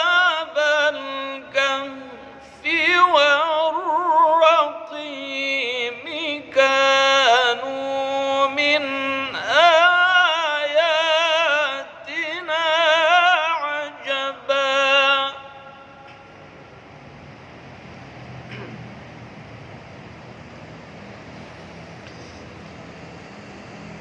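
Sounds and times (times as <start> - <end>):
man chanting recitation: 0.0 - 16.3.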